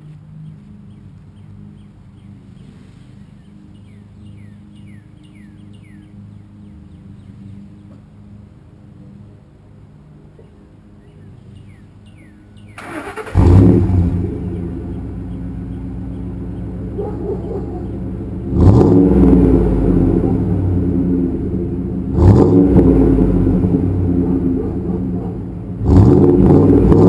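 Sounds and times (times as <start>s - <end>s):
engine idling: 12.7s - 27.0s
engine cranking and starting: 12.8s - 14.1s
engine revving: 12.8s - 27.0s.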